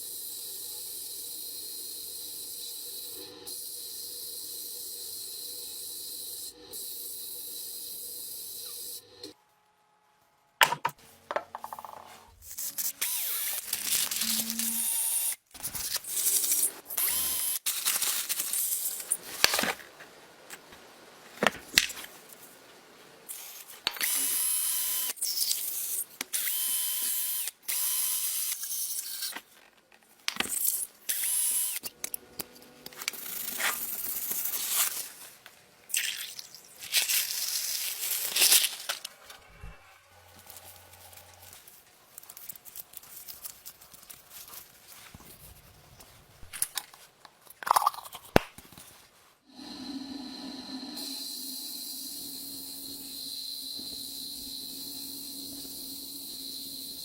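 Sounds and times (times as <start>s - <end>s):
power drill running: 14.2s - 15.4s, 17.0s - 17.6s, 24.0s - 25.2s, 26.4s - 28.7s, 31.1s - 31.9s.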